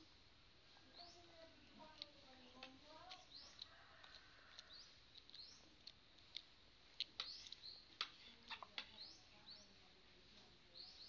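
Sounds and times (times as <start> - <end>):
high bird chirps: 3.1 - 3.7, 4.6 - 5.7, 7.2 - 8.0.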